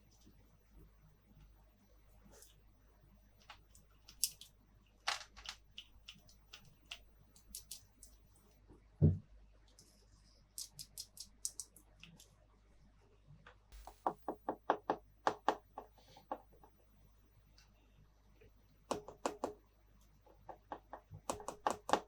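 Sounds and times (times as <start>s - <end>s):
plastic toy pieces clicking: 4.1s - 4.5s, 5.1s - 8.2s, 10.6s - 11.8s.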